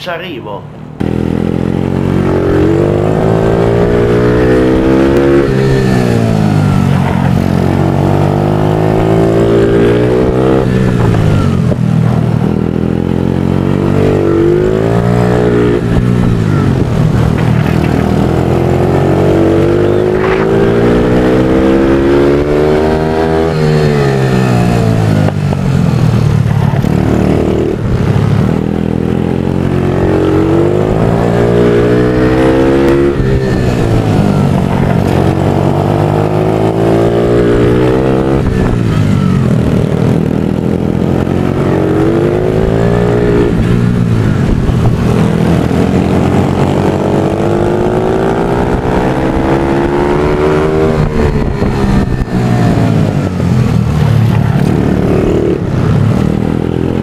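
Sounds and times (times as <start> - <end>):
motorcycle engine revving: 0.8 - 57.0.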